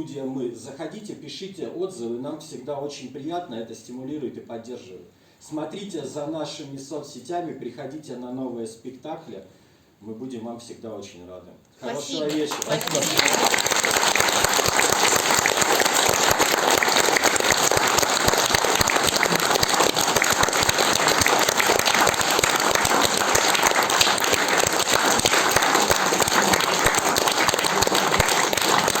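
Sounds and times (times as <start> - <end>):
audience applauding: 11.9 - 29.0.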